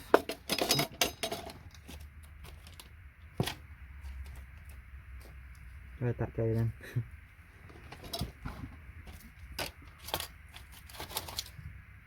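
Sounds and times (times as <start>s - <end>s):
metallic clicks and clinks: 0.1s - 1.8s.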